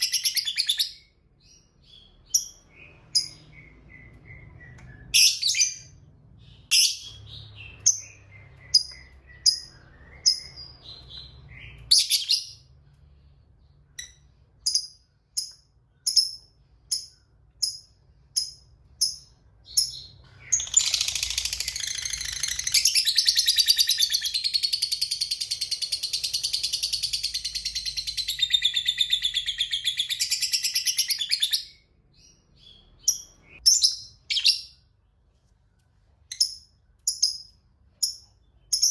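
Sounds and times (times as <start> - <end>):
lovebird chirping: 0.0 - 34.9, 36.2 - 38.9
lovebird chattering trill: 19.8 - 31.5.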